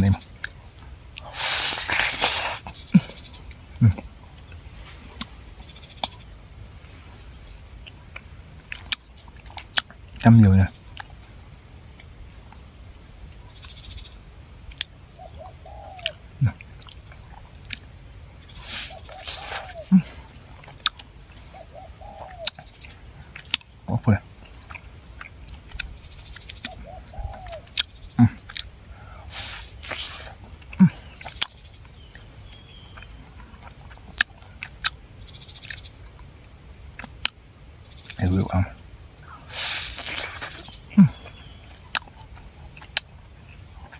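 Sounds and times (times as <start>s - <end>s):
person chewing: 0.4s - 6.2s, 7.4s - 10.0s, 14.7s - 14.9s, 16.0s - 21.6s, 22.3s - 35.0s, 35.6s - 37.5s, 38.7s - 43.9s
mouth smacks: 1.2s - 4.1s, 18.5s - 21.0s, 22.1s - 31.6s, 38.1s - 43.1s
bird call rising and falling: 18.5s - 20.1s, 21.5s - 22.7s, 26.6s - 27.8s.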